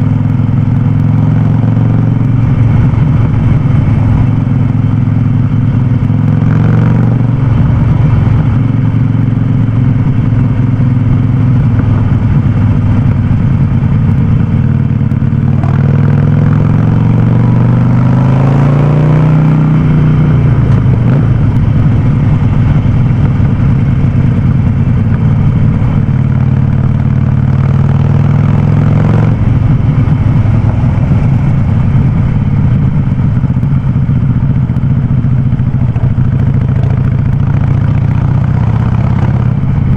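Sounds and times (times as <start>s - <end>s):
motorcycle engine with loud exhaust: 0.0s - 39.9s.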